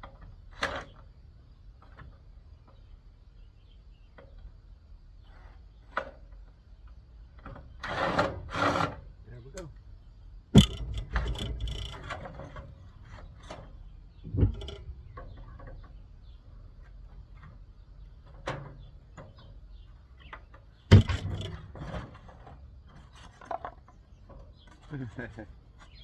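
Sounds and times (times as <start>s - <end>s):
quiet rattles: 9.3s - 26.0s
knocks of metal parts handled: 10.6s - 12.8s, 14.3s - 15.4s, 20.9s - 22.0s.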